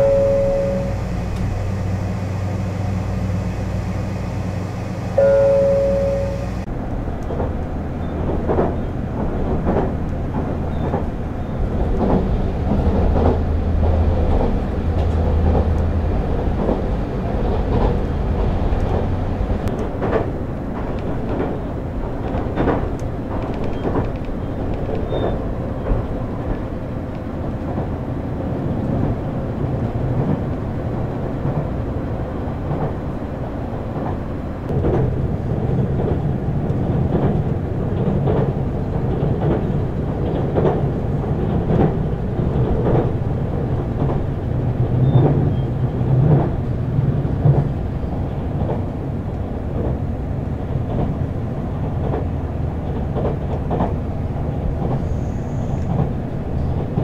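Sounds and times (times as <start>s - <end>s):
train running rumble: 0.0s - 57.0s
wheels clacking over rail joints: 7.2s - 32.0s, 33.9s - 55.2s.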